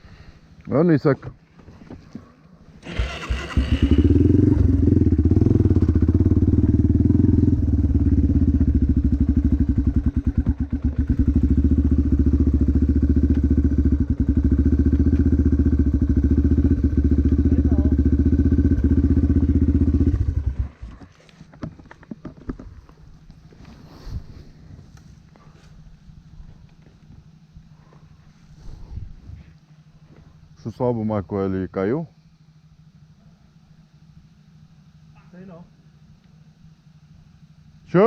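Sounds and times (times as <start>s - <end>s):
motocross bike engine: 2.7s - 22.2s.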